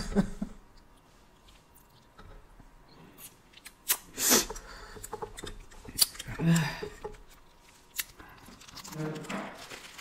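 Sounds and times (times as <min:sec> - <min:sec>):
crunchy rustle: 0:07.5 - 0:10.0.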